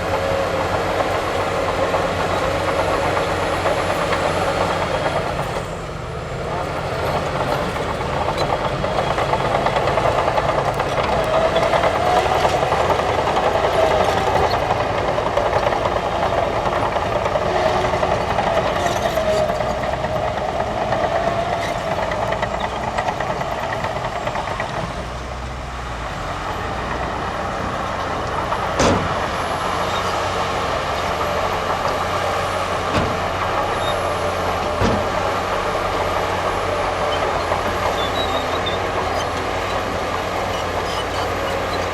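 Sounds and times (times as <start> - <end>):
heavy diesel machinery running: 0.0 - 41.9.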